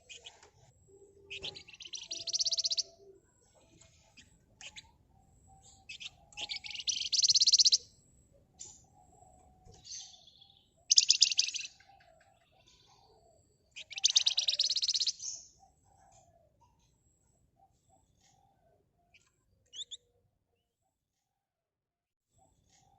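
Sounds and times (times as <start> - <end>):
songbird rattling trills: 0.0 - 0.4, 1.2 - 2.9, 5.6 - 7.8, 10.9 - 11.8, 13.8 - 15.4.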